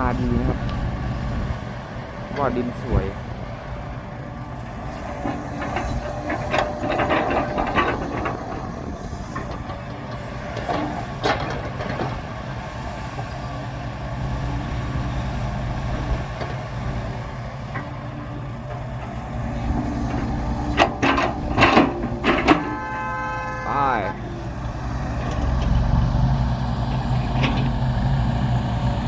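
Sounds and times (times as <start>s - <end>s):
diesel engine running: 0.0s - 29.0s
metal clanks and knocks: 4.4s - 12.4s, 16.3s - 28.3s.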